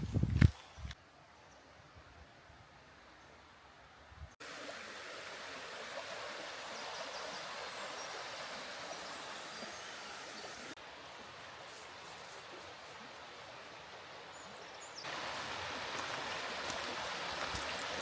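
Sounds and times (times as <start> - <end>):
stream flowing: 4.4 - 18.0.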